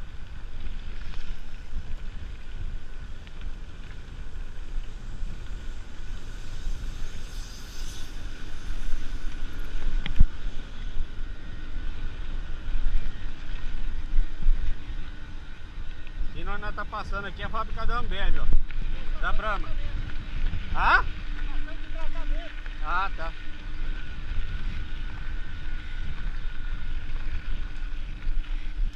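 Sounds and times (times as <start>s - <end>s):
wind rushing over microphone: 0.0s - 28.9s.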